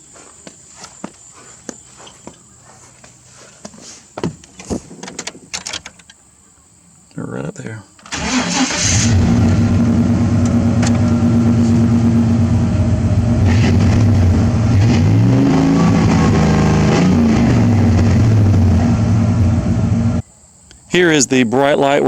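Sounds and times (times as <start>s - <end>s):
truck engine starting and running: 8.0s - 20.2s.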